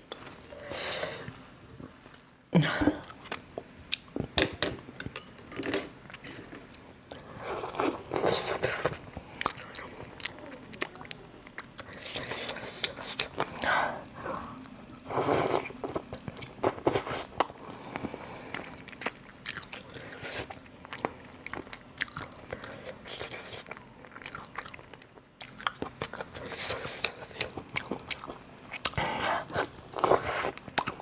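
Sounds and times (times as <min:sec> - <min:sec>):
crisp chewing crunches: 0:14.4 - 0:31.0.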